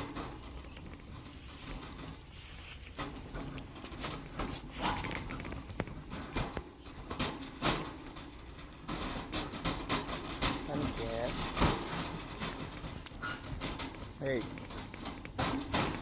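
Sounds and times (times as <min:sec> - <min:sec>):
faint rustling: 0:00.0 - 0:16.0.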